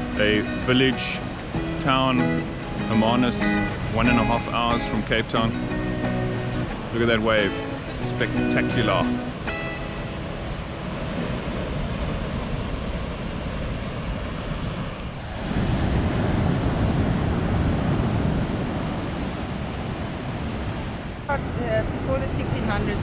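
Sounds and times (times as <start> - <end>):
ocean surf breaking: 0.0 - 23.0
wind on microphone: 9.0 - 23.0.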